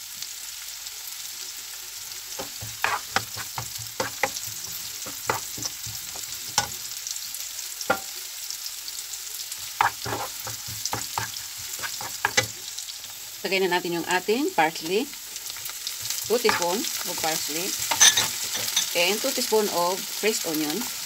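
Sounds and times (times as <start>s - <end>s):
onion and garlic sizzling in oil: 0.0s - 21.0s
plastic spoon scraping and tapping pan: 2.4s - 6.8s, 9.6s - 12.6s, 15.5s - 18.9s.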